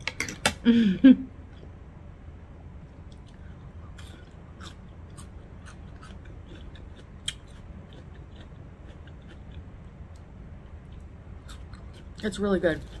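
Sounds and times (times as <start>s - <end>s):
steady low hum: 0.0s - 13.0s
crisp chewing and mouth sounds: 3.1s - 13.0s.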